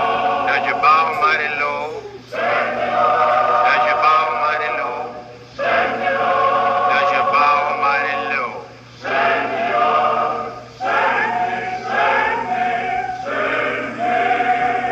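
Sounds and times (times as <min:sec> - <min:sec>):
choir singing: 0:00.0 - 0:14.9.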